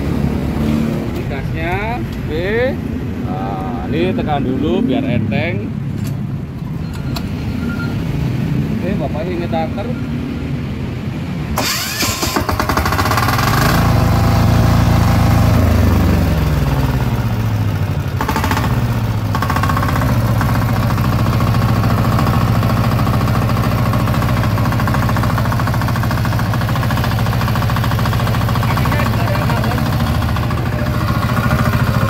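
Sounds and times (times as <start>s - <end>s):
diesel engine running: 11.6s - 32.0s.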